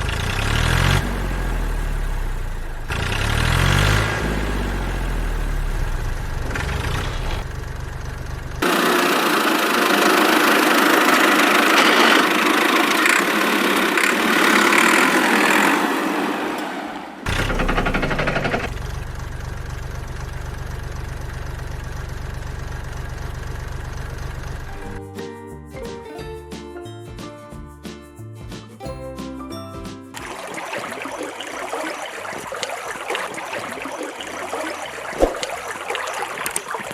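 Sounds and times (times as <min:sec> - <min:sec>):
tractor engine idling: 0:00.0 - 0:16.0, 0:17.3 - 0:25.0.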